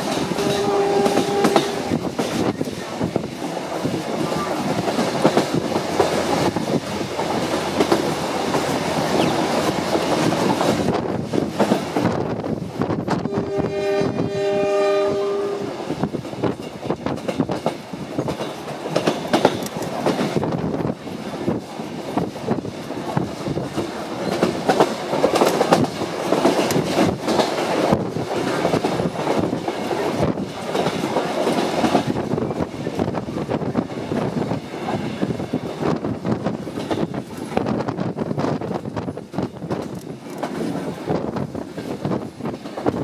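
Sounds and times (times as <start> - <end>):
train wheels clacking over rail joints: 0.0 - 13.5, 15.7 - 43.0
train horn blast: 0.3 - 2.0, 13.2 - 15.8.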